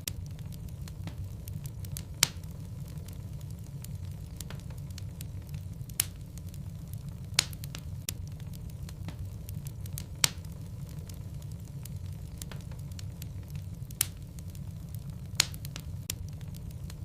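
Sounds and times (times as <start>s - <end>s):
logs crackling in fireplace: 0.0s - 17.0s
loud sharp fire pops: 0.0s - 17.0s
low rumble of flame: 0.0s - 17.0s.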